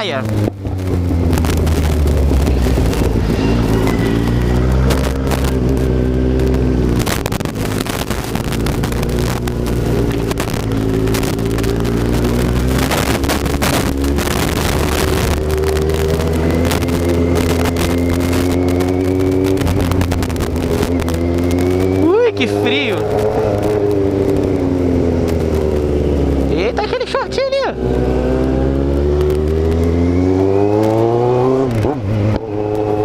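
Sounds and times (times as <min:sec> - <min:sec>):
motorcycle engine running: 0:00.0 - 0:33.0
wind buffeting microphone: 0:00.3 - 0:22.1.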